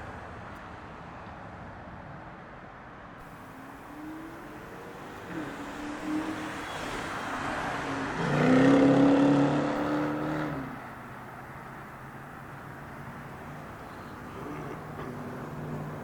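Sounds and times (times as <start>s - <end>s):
motor vehicle passing: 3.2s - 16.0s.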